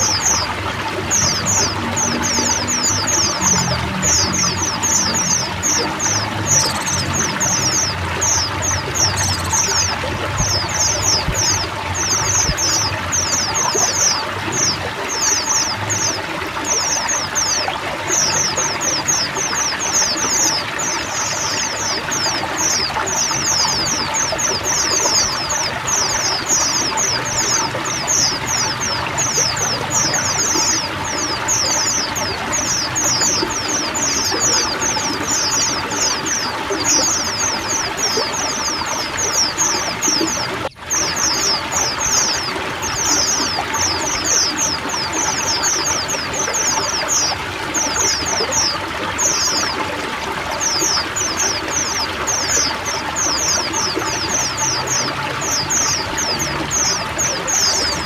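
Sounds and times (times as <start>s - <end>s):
birds chirping and twittering: 0.0s - 58.0s
running water: 0.0s - 58.0s.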